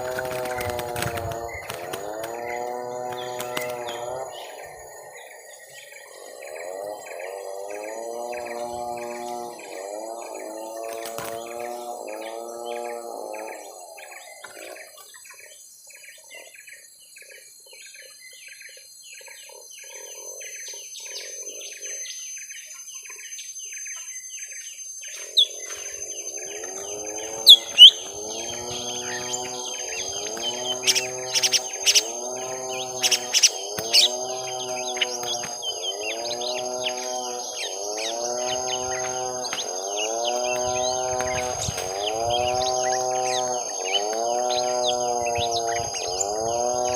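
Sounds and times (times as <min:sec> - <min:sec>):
birds chattering: 0:00.0 - 0:46.9
loud sharp bird chirps: 0:22.9 - 0:46.9
harsh lower bird call: 0:25.2 - 0:46.9.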